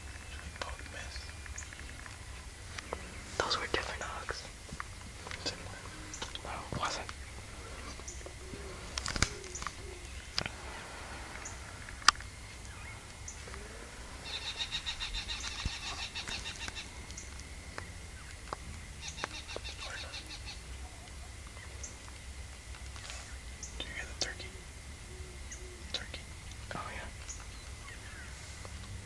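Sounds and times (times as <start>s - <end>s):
sharp clicks: 8.9s - 10.6s
bird trilling: 14.2s - 17.4s.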